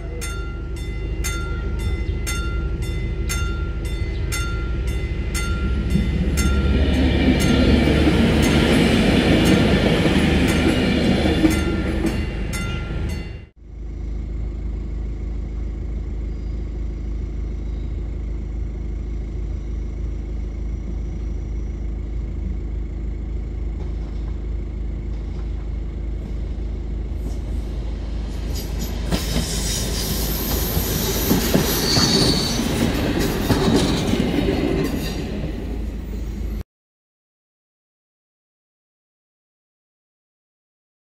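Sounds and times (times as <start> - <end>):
train rolling on rails: 0.0 - 36.6
high wheel squeal: 27.2 - 36.6.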